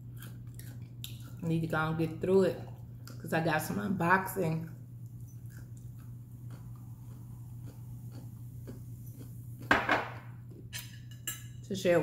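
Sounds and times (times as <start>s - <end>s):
person chewing food: 0.0s - 1.4s, 2.7s - 3.3s, 4.7s - 9.7s, 10.3s - 10.7s
steady low hum: 0.0s - 12.0s.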